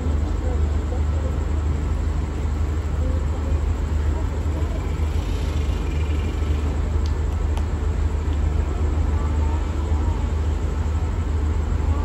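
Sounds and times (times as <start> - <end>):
train rumbling: 0.0 - 12.0
faint clicks: 5.8 - 8.5.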